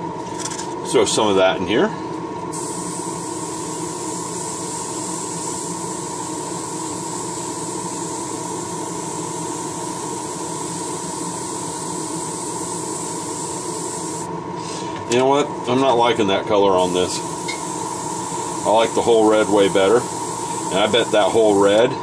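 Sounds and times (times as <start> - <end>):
extraction fan humming: 0.0 - 22.0
airbrush spraying hiss: 2.5 - 14.3, 16.8 - 21.8.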